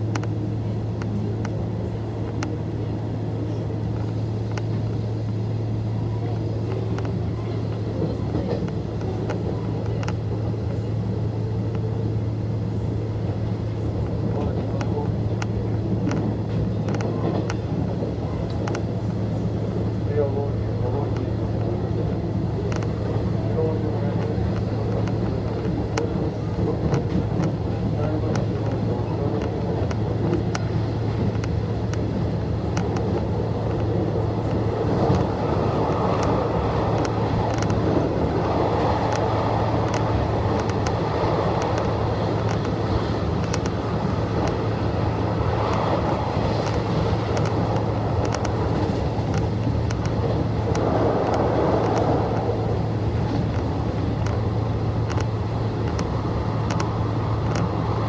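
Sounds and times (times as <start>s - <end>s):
train wheels rumbling on rails: 0.0s - 58.0s
faint ticks: 56.7s - 57.7s.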